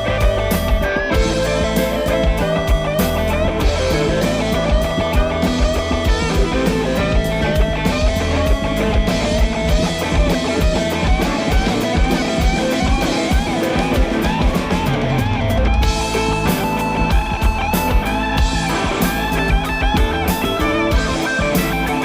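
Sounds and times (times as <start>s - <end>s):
bass guitar: 0.0s - 22.0s
drum kit with cymbal hits: 0.0s - 22.0s
electric guitar lead: 0.0s - 22.0s.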